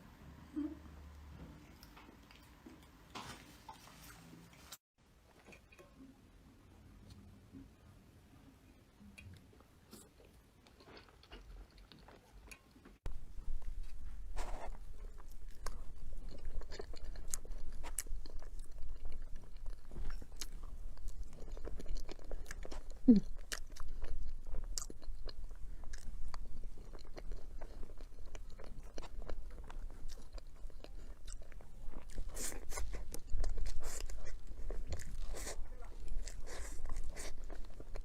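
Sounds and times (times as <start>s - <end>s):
person chewing crunchy food: 9.9s - 12.7s, 13.5s - 38.0s.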